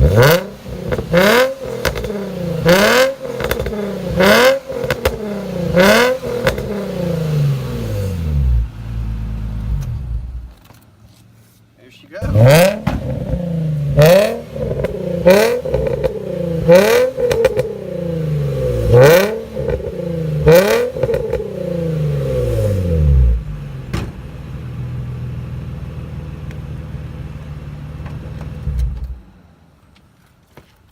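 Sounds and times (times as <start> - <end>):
car engine revving raspily: 0.0 - 8.8, 12.2 - 23.5
car engine idling: 0.0 - 10.9, 12.0 - 30.0.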